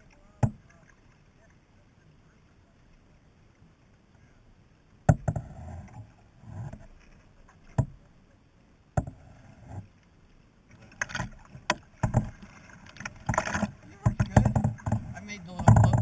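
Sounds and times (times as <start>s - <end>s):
paddle knocking on kayak: 0.4s - 0.6s, 5.1s - 5.6s, 7.7s - 8.0s, 9.0s - 9.2s, 11.2s - 16.0s
water splashing: 9.2s - 16.0s.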